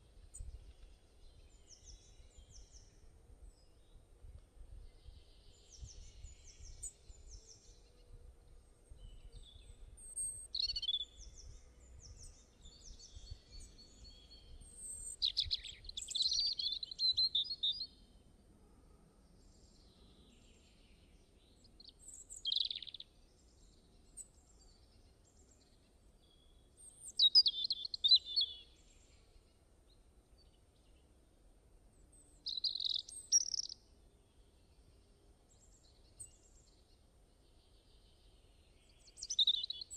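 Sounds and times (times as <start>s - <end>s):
birds singing and chirping: 9.0s - 11.4s, 12.1s - 17.9s, 21.8s - 23.0s, 26.9s - 28.7s, 32.3s - 33.8s, 38.9s - 39.9s.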